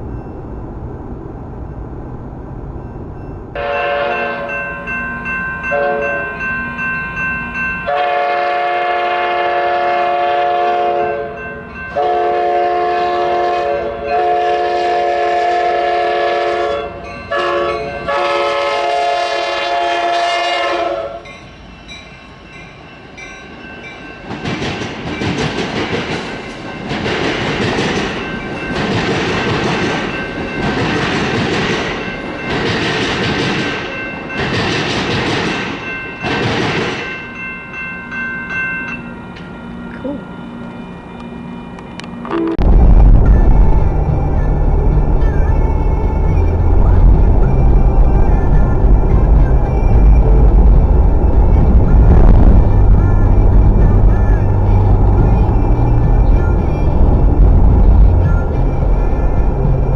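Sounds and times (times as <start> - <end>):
locomotive air horn blasts: 3.6 - 4.5, 7.9 - 11.3, 12.0 - 21.3
train wheels clattering on rails: 22.7 - 37.4, 42.6 - 59.9.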